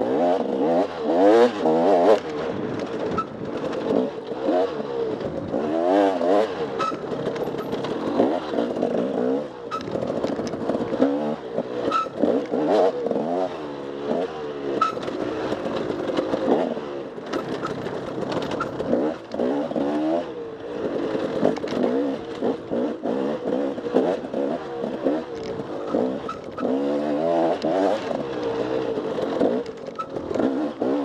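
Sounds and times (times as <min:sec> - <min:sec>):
dirt bike engine revving: 0:00.0 - 0:31.0
sharp knocks and clatter: 0:06.8 - 0:09.1, 0:14.8 - 0:19.5.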